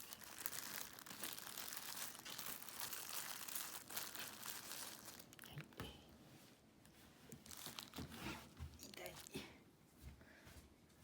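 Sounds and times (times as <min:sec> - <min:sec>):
plastic wrapping crinkling: 0:00.0 - 0:05.8, 0:07.3 - 0:09.5.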